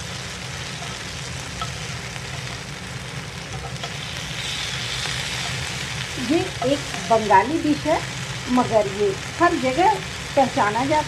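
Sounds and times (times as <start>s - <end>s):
eggplant sizzling in oil: 0.0s - 11.0s
spatula scraping pan: 3.5s - 7.1s.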